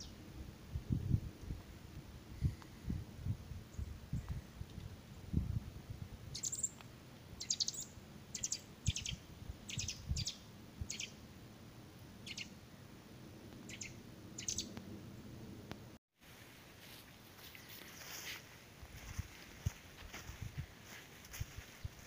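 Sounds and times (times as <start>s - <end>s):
songbird calling: 6.3s - 6.8s, 7.4s - 11.2s, 12.2s - 12.7s, 13.6s - 14.8s.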